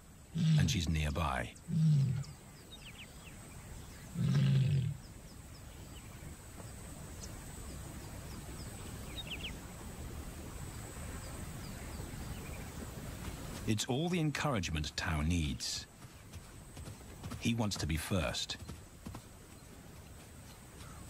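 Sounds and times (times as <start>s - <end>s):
low steady hiss: 0.0s - 21.0s
lion roaring: 0.3s - 0.8s, 1.7s - 2.3s, 4.1s - 5.0s
faint bird chirps: 0.3s - 9.6s.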